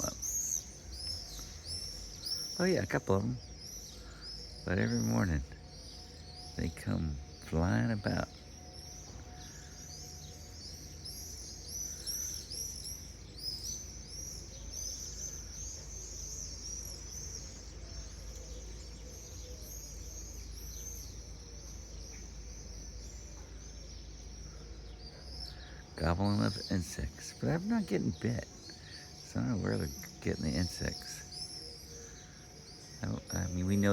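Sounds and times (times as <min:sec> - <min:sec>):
flock of birds chirping: 0:00.0 - 0:33.9
steady low hum: 0:00.0 - 0:33.9.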